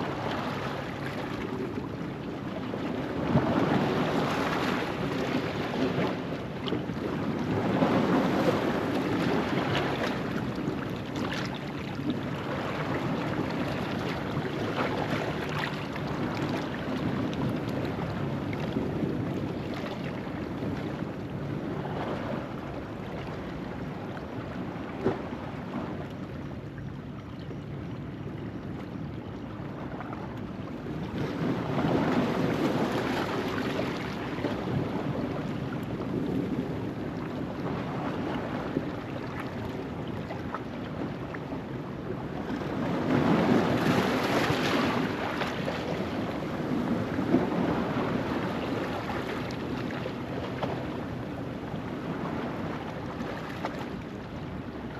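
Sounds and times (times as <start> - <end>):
ocean waves on rocky shore: 42.2 - 54.9.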